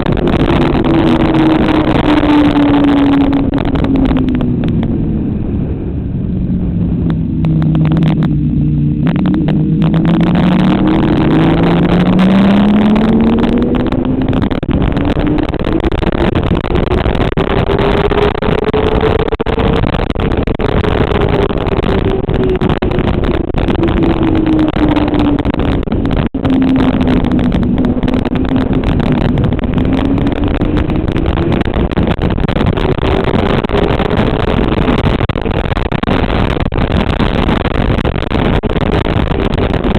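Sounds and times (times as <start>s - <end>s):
motorcycle engine revving: 0.0s - 39.9s
wind rush: 0.0s - 39.9s.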